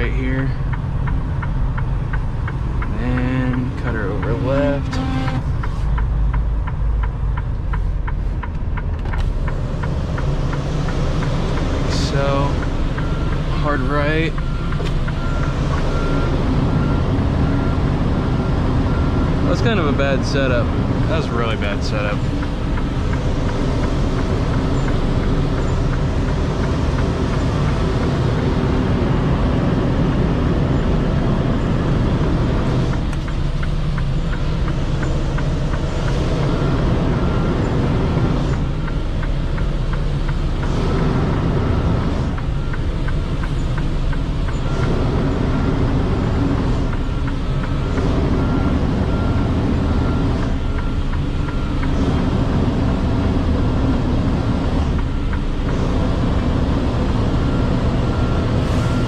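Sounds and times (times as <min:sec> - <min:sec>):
truck diesel engine idling: 0:00.0 - 0:59.0
faint reversing beeps: 0:11.9 - 0:29.4, 0:34.0 - 0:54.0, 0:54.9 - 0:59.0.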